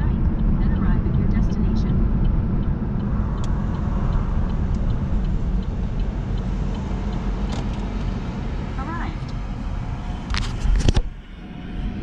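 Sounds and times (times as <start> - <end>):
faint repeating tick: 1.9 - 8.2.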